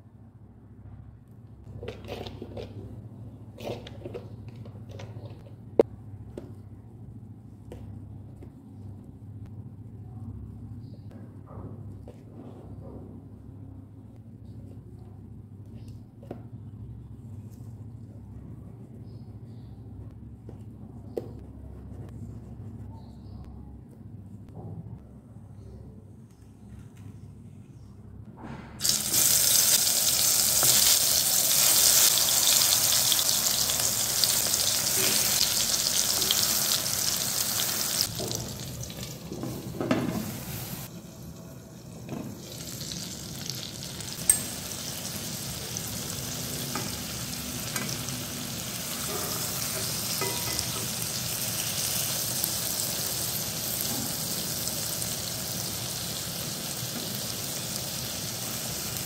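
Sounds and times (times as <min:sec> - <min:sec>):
vegetable slices sizzling in oil: 0:28.8 - 0:39.3, 0:42.3 - 0:59.0.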